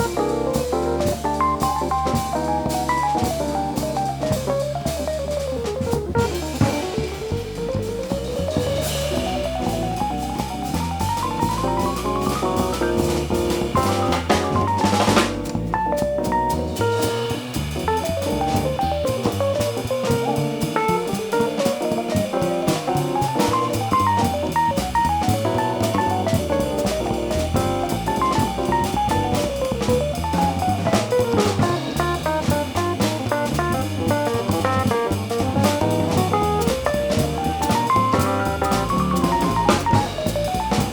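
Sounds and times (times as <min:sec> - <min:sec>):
jazz combo playing: 0:00.0 - 0:40.9.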